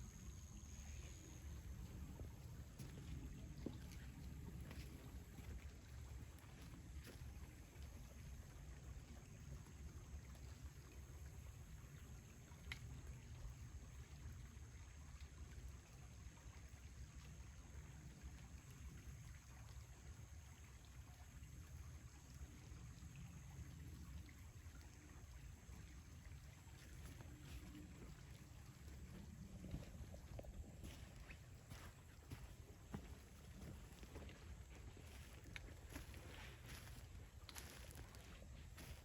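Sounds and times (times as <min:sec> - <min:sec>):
stream water flowing: 0:00.0 - 0:39.0
low steady rumble: 0:23.0 - 0:39.0.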